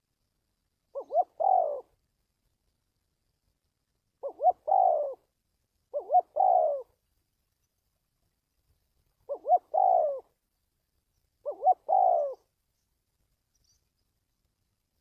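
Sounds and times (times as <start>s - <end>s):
dove cooing: 0.9s - 2.0s, 4.2s - 5.3s, 5.9s - 7.0s, 9.2s - 10.3s, 11.4s - 12.5s.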